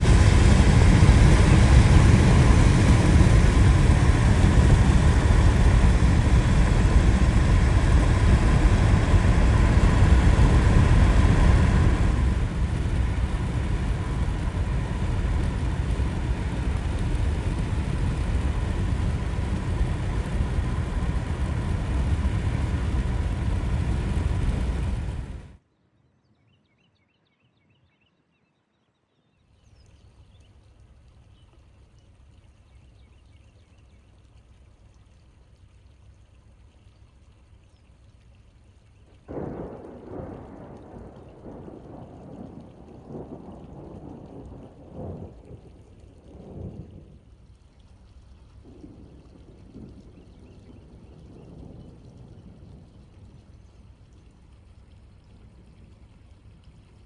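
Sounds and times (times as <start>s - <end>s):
car road and wind rumble: 0.0s - 25.6s.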